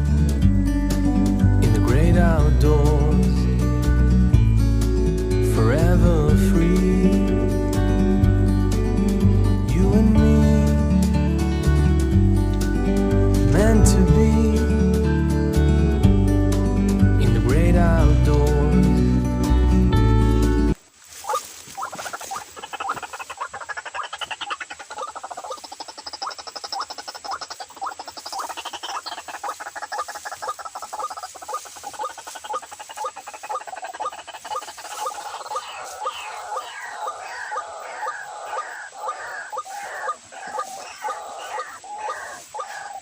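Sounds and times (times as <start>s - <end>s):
waterhens croaking: 21.1s - 43.0s.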